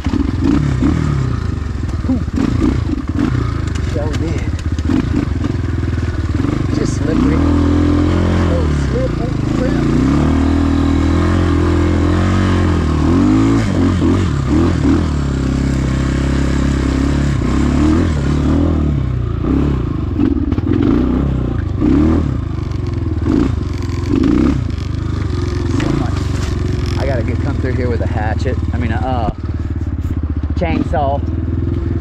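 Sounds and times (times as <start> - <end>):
dirt bike engine revving: 0.0 - 32.0
clattering and scraping: 23.8 - 27.0.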